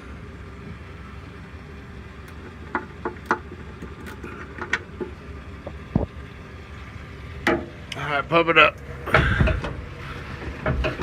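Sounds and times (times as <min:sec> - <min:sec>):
low steady hum: 0:00.0 - 0:11.0
sharp clicks and light knocks: 0:02.2 - 0:06.1, 0:10.4 - 0:11.0.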